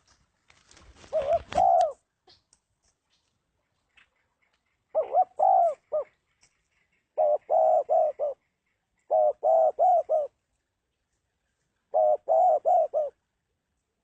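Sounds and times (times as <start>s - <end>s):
dove cooing: 1.1s - 2.1s, 4.9s - 6.2s, 6.9s - 8.4s, 9.0s - 10.4s, 11.9s - 13.2s.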